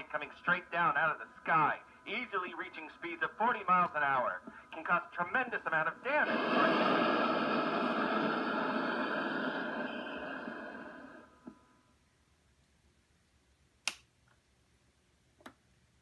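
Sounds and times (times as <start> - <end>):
radio speaker hiss: 0.0 - 11.8
sharp clicks: 13.8 - 14.1.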